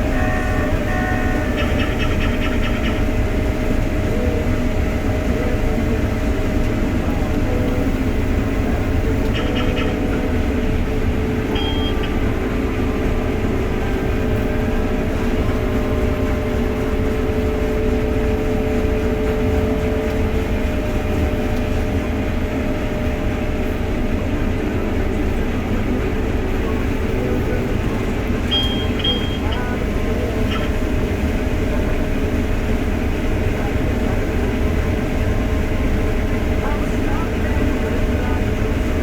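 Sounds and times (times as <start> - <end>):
combine harvester running: 0.0 - 39.0
high electronic beeps: 9.4 - 12.3, 28.5 - 29.6.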